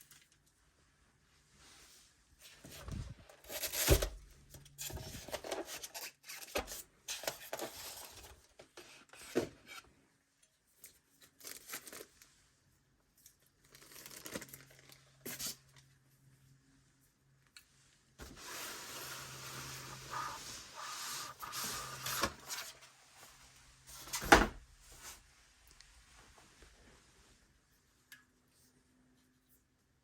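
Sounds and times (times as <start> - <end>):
packaging tearing and crinkling: 13.6 - 15.6.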